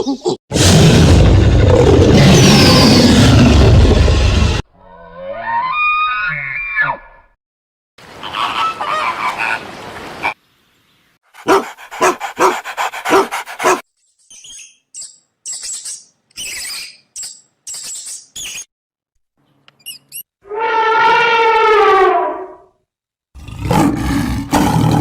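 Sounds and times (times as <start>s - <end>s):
dog yelping: 11.4s - 13.8s
dogs barking: 11.4s - 13.8s.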